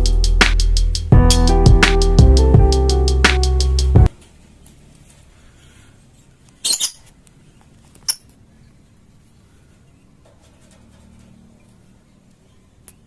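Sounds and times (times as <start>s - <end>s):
bird shrill chirps: 6.6s - 7.0s.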